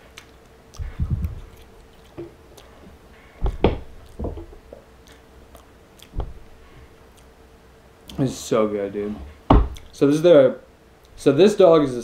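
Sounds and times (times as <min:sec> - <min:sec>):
wet squishy chewing: 0:00.1 - 0:02.9, 0:05.0 - 0:07.4.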